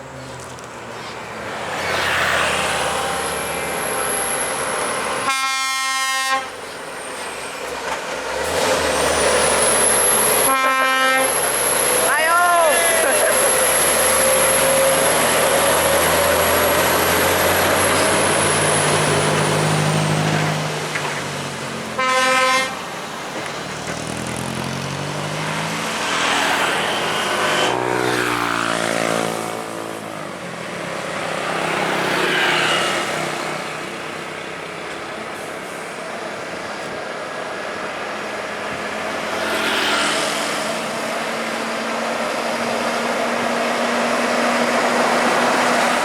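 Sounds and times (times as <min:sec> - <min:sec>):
heavy trucks driving past: 0:00.0 - 0:46.0
truck horn toot: 0:05.2 - 0:06.6, 0:10.3 - 0:11.6, 0:22.0 - 0:22.8.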